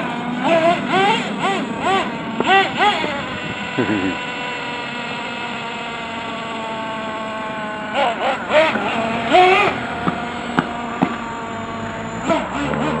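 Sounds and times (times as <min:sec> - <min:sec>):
rc truck motor whine: 0:00.0 - 0:13.0
person calling out: 0:03.8 - 0:04.3.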